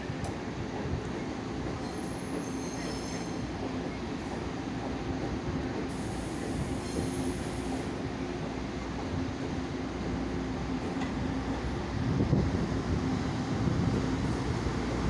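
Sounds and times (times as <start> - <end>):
diesel train rumbling: 0.0 - 15.0
high wheel squeals: 1.8 - 3.4, 6.8 - 7.4.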